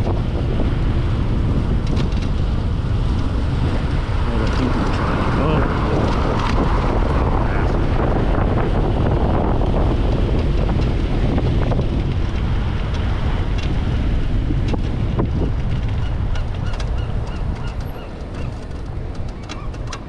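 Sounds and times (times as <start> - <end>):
wind rumbling over microphone: 0.0 - 20.0.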